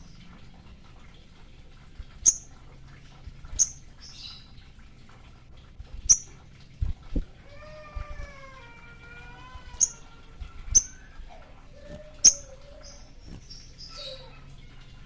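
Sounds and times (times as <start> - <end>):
songbird chirps: 0.0 - 4.9, 6.0 - 6.8, 8.6 - 15.0
scratchy bird chatter: 6.0 - 15.0.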